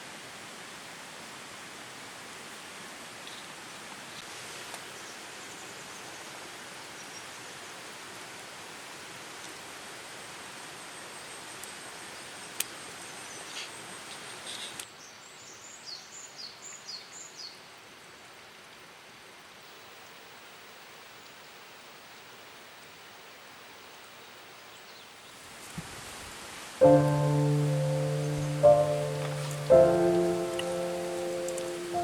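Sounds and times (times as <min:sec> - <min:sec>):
steady outdoor hiss: 0:00.0 - 0:32.0
bird chirping: 0:26.8 - 0:32.0.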